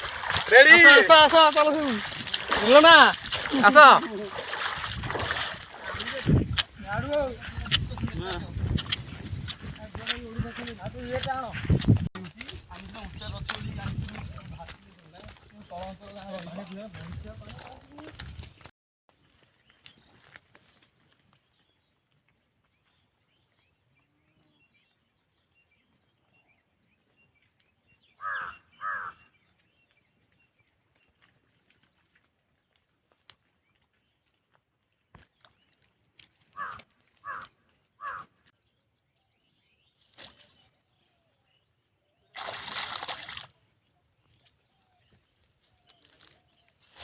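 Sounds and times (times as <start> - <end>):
crow cawing: 28.2 - 29.3, 36.5 - 38.4.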